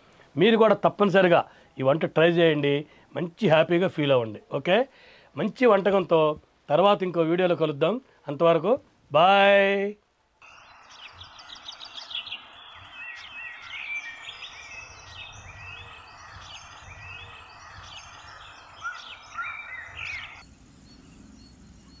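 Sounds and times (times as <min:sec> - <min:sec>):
small birds chirping: 0:10.4 - 0:22.0.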